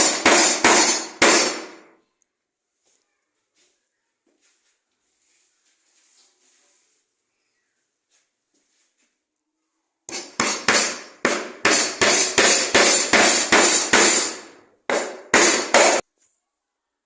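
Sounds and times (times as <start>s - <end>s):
hammer blows: 0.0s - 1.9s.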